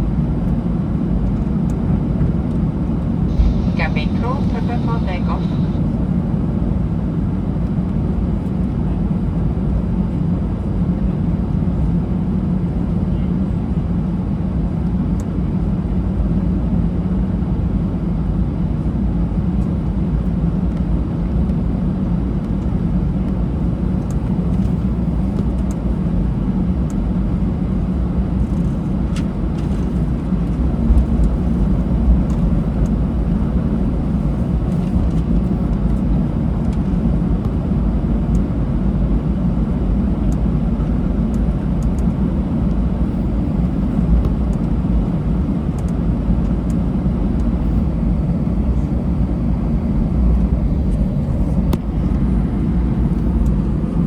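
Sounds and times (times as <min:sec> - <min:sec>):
jet cabin engine rumble: 0:00.0 - 0:54.0.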